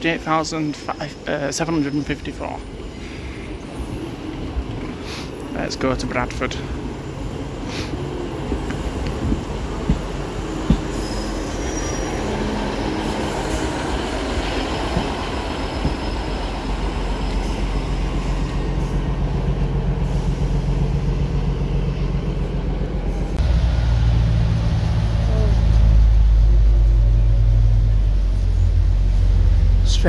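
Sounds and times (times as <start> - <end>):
wheel and rail noise: 0.6 - 30.0
diesel engine hum: 4.9 - 30.0
deep engine hum: 17.8 - 30.0.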